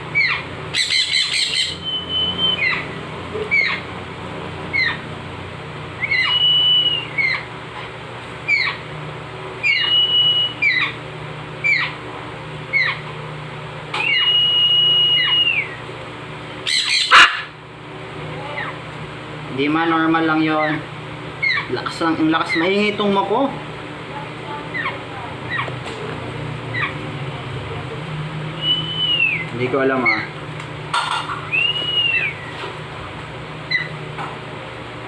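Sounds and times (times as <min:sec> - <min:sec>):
baby macaw squeaking: 0:00.1 - 0:03.9, 0:04.7 - 0:05.1, 0:06.0 - 0:07.5, 0:08.5 - 0:08.8, 0:09.6 - 0:11.0, 0:11.6 - 0:12.0, 0:12.7 - 0:13.1, 0:14.0 - 0:14.4, 0:15.0 - 0:15.8, 0:16.6 - 0:17.5, 0:21.4 - 0:21.7, 0:22.4 - 0:22.8, 0:24.7 - 0:25.7, 0:26.7 - 0:27.0, 0:30.0 - 0:30.3, 0:31.5 - 0:32.5, 0:33.7 - 0:34.0.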